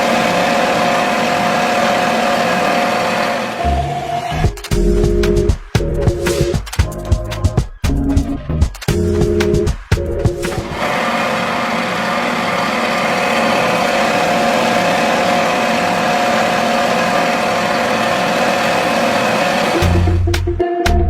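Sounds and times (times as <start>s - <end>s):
small motor whining: 10.5s - 20.1s.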